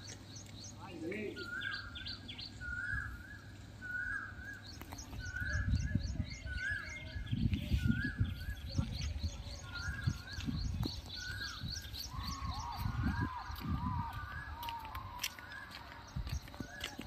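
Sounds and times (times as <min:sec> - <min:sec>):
low wind rumble on microphone: 0:04.6 - 0:17.0
bird rising and falling call: 0:09.6 - 0:17.0.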